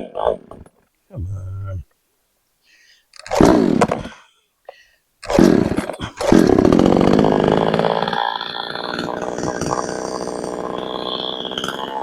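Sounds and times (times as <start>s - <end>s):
chainsaw engine running: 5.3s - 12.0s.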